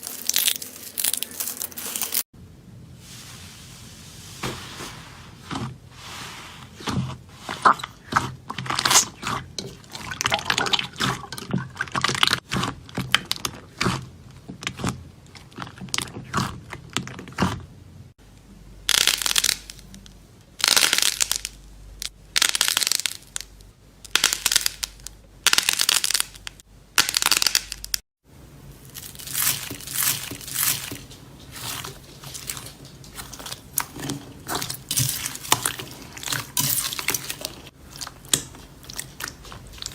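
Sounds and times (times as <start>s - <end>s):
slime crackling and crunching: 0.0s - 2.3s, 6.8s - 17.6s, 18.9s - 20.0s, 20.6s - 28.0s, 28.7s - 39.9s
slime squelching: 3.0s - 17.8s, 28.7s - 39.9s.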